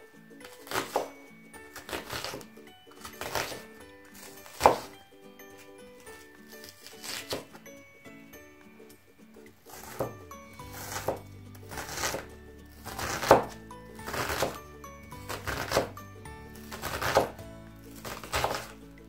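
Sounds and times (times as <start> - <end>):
background music with melody: 0.0 - 19.0
knife chopping on wooden board: 0.6 - 1.1, 1.8 - 2.5, 3.1 - 3.6, 4.2 - 5.0, 6.6 - 7.6, 9.7 - 14.6, 15.2 - 16.0, 16.6 - 17.4, 18.0 - 18.7.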